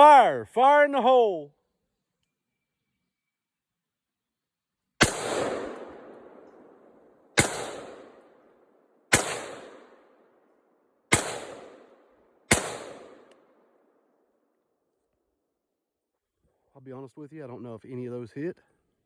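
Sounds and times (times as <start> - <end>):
rifle shots with reverberation: 5.0 - 10.4, 11.1 - 14.0.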